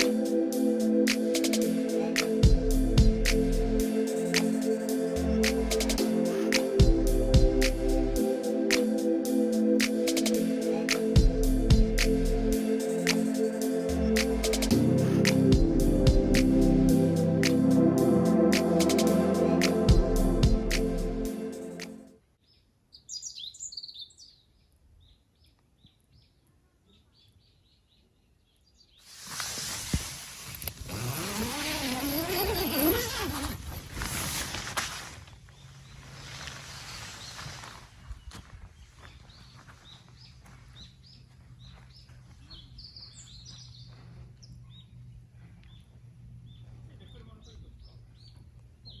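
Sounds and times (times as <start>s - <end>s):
background music: 0.0s - 22.2s
small birds chirping: 36.8s - 49.0s.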